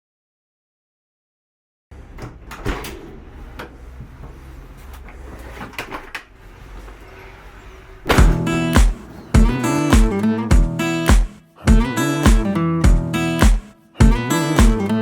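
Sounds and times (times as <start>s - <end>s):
strummed acoustic guitar music: 8.2s - 15.0s.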